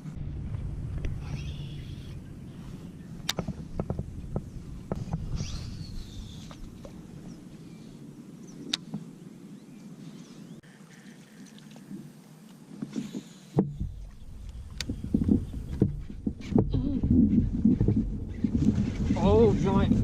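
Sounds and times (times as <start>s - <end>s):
low rumble: 0.0s - 8.3s, 13.6s - 20.0s.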